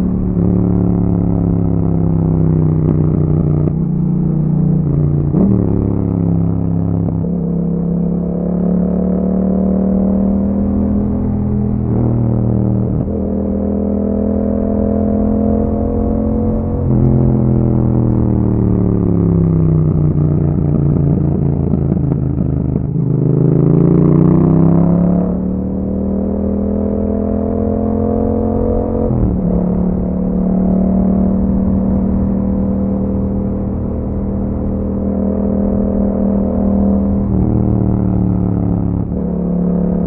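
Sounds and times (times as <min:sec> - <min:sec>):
motorcycle engine while riding: 0:00.0 - 0:40.0.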